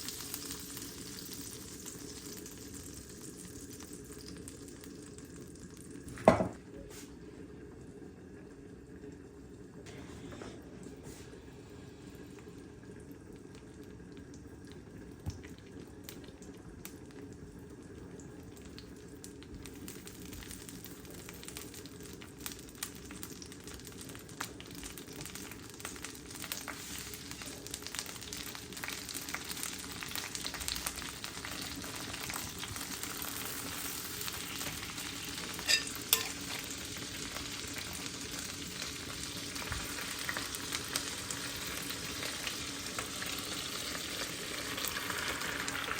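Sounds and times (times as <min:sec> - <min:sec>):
food sizzling in a pan: 0:00.0 - 0:07.3, 0:09.9 - 0:45.9
utensil stirring and scraping: 0:35.6 - 0:36.6.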